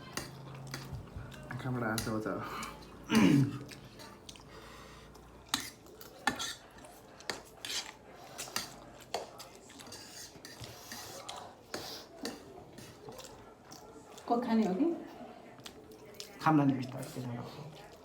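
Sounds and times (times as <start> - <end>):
cutlery clinking against bowls: 0.0 - 4.5, 5.4 - 14.7.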